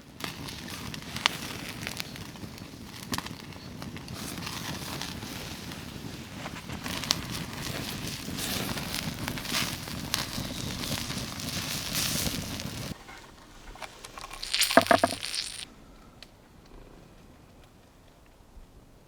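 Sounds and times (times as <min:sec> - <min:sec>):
campfire crackling: 0:00.0 - 0:15.7
fat sizzling over flames: 0:00.0 - 0:15.7
campfire pops: 0:13.9 - 0:15.7.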